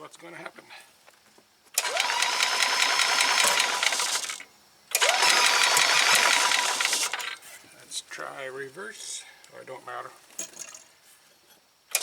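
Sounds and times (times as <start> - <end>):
starter cranking engine: 1.8 - 7.4.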